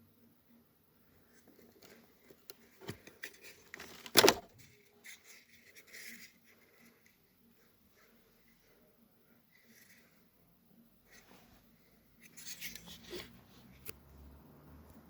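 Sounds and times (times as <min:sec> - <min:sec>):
plastic scraping: 0:01.4 - 0:06.3
plastic trim clicks and rustles: 0:01.5 - 0:04.8.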